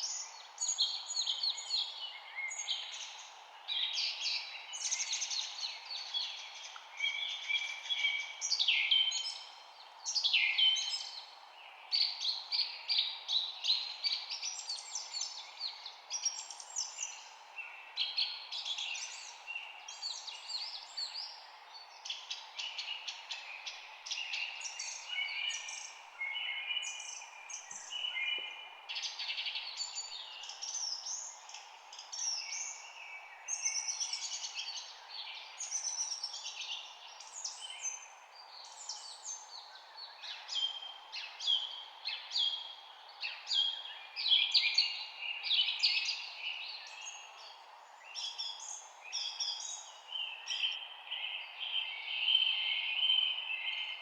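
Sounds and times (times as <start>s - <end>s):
faint background hiss: 0.0s - 54.0s
songbirds chirping and trilling: 0.0s - 54.0s.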